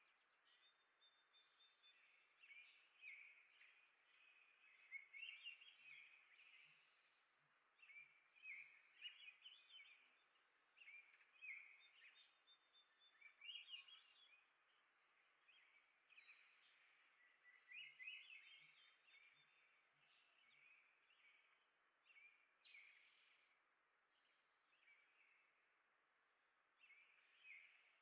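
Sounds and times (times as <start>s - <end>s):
songbirds chirping: 0.0s - 28.0s.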